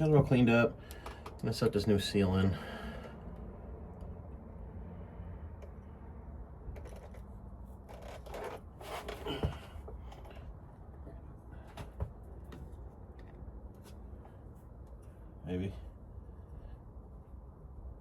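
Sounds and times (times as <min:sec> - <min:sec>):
steady low hum: 0:00.0 - 0:18.0
parts and tools rustling: 0:06.7 - 0:15.1.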